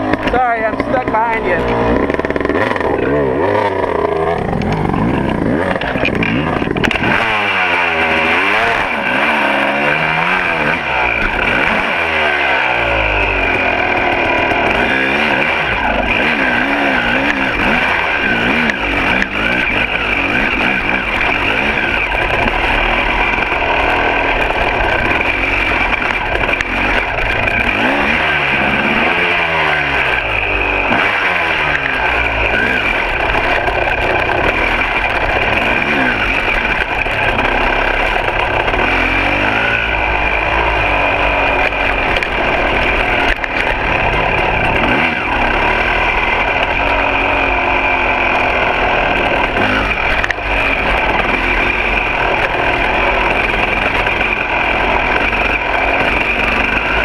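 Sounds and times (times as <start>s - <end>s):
dirt bike engine revving: 0.0s - 57.0s
wind and riding noise: 0.0s - 57.0s.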